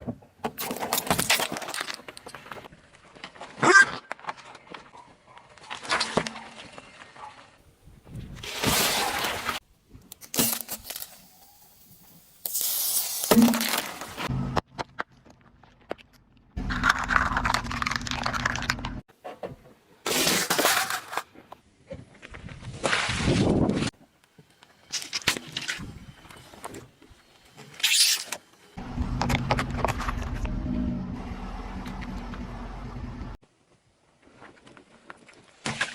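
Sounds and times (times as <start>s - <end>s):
car engine humming: 28.8s - 33.4s.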